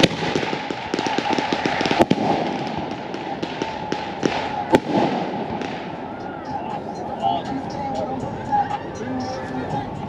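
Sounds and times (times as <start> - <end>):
sharp firework crack: 0.0 - 6.1
fireworks crackling and fizzing: 0.0 - 6.2.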